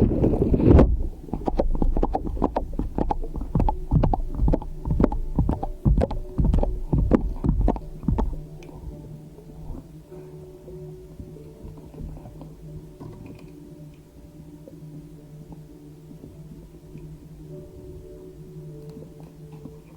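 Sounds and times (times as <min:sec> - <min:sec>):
slime squelching: 0:00.0 - 0:08.5
low hum: 0:00.0 - 0:19.9.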